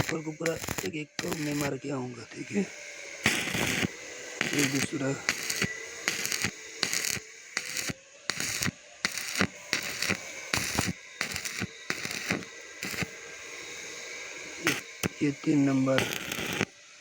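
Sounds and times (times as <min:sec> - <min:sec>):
welding arc crackling: 0:00.0 - 0:01.8, 0:02.4 - 0:13.5, 0:14.2 - 0:16.9
faint hum: 0:00.0 - 0:17.0.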